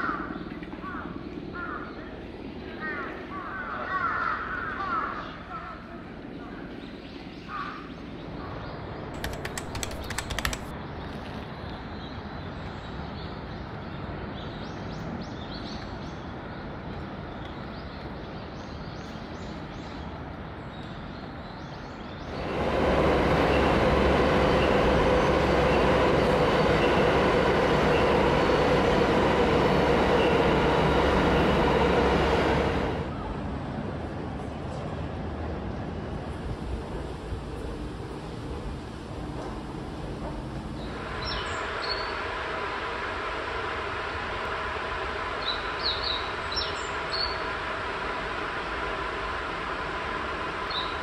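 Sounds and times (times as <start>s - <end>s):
outdoor ambience: 0.0s - 51.0s
train rumble with whine: 8.4s - 10.8s, 11.8s - 51.0s
clatter of clicks: 9.2s - 10.7s.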